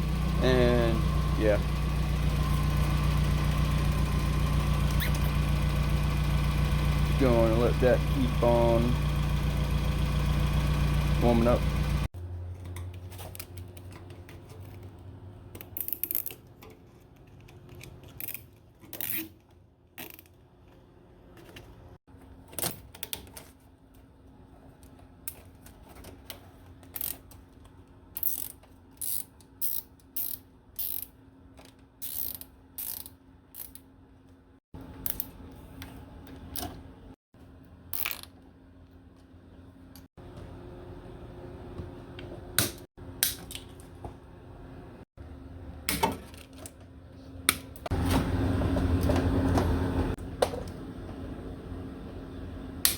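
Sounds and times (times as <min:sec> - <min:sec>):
ratchet clicking: 0:28.2 - 0:31.2, 0:32.0 - 0:33.8.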